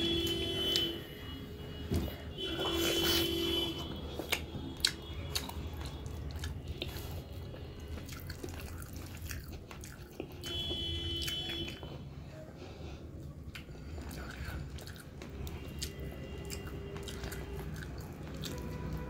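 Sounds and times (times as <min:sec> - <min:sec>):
person chewing food: 0:01.8 - 0:19.0
lip smacks: 0:03.7 - 0:07.2.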